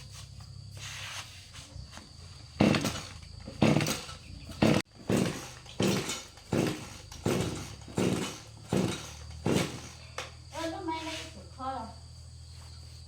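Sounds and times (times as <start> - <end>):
diesel engine firing in bursts: 2.6 - 10.2.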